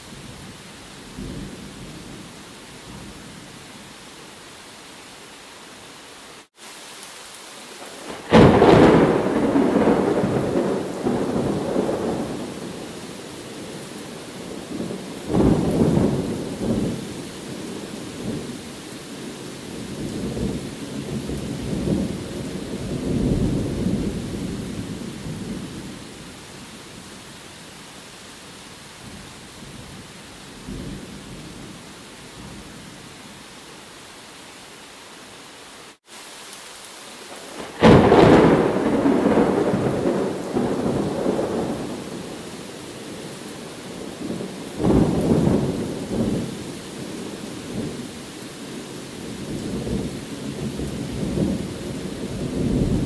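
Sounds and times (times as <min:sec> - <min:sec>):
steady rain: 0:00.0 - 0:53.0
thunder clap and rolls: 0:08.3 - 0:12.8, 0:37.6 - 0:42.3, 0:52.2 - 0:53.0.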